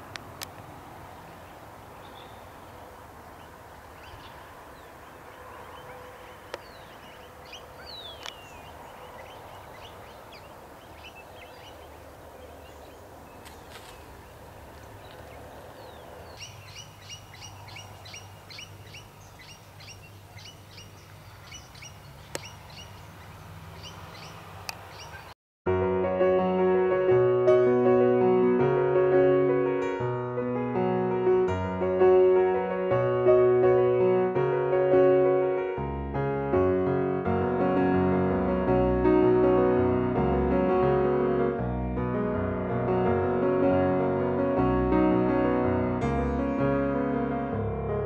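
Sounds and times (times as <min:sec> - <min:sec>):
birds chirping: 0:00.5 - 0:25.4.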